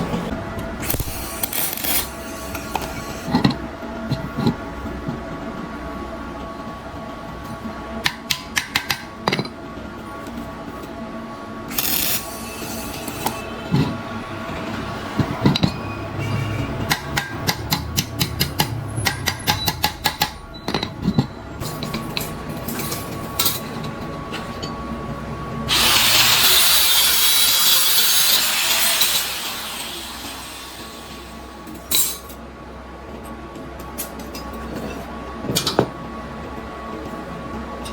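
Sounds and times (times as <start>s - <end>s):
loud even hiss: 25.7s - 31.5s.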